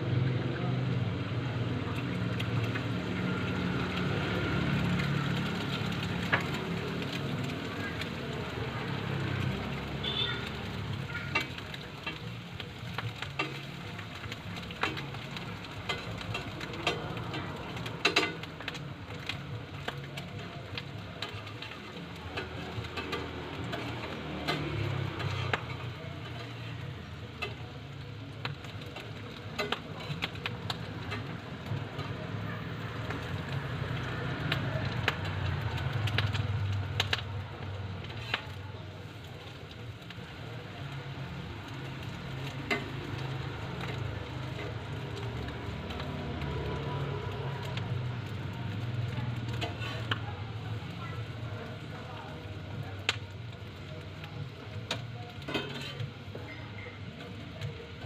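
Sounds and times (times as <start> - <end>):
food sizzling on a griddle: 0.0 - 58.0
metal utensils clicking: 10.9 - 32.2, 54.9 - 56.4.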